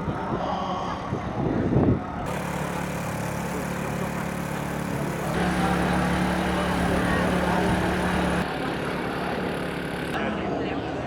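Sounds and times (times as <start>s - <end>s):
motorcycle engine idling: 2.3s - 10.2s.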